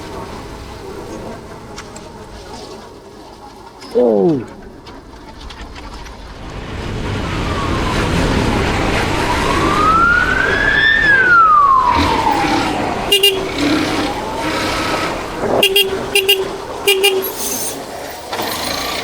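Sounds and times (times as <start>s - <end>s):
traffic noise: 6.4s - 19.0s
emergency siren wailing: 7.1s - 17.5s
car horn honks: 13.1s - 13.8s, 15.5s - 17.8s.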